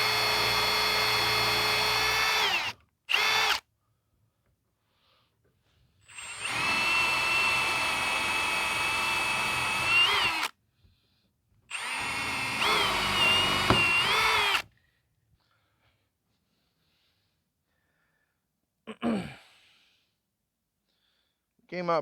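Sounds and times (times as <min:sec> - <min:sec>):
electric drill boring into wood: 0:00.0 - 0:03.6, 0:06.0 - 0:10.5, 0:11.7 - 0:14.7.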